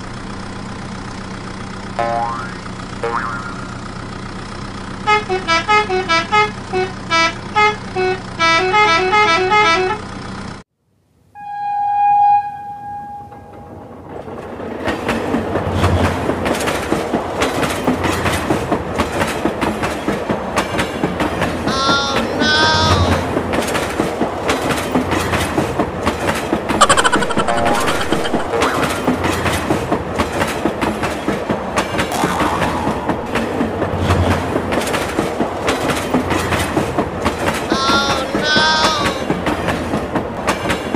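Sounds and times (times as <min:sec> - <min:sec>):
toy horn toot: 0:05.0 - 0:10.0, 0:21.7 - 0:23.2, 0:37.7 - 0:39.3
toy motor hum: 0:21.6 - 0:23.2, 0:37.7 - 0:39.3
toy beeping electronic tune: 0:26.8 - 0:29.1
warbling electronic sound effects: 0:26.8 - 0:29.3, 0:32.1 - 0:33.4.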